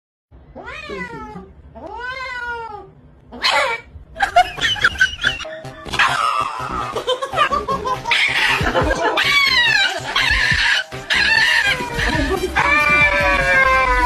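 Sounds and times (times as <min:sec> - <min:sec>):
animal wailing: 0:00.6 - 0:03.9, 0:04.8 - 0:07.0, 0:08.1 - 0:14.0
music: 0:04.8 - 0:14.0.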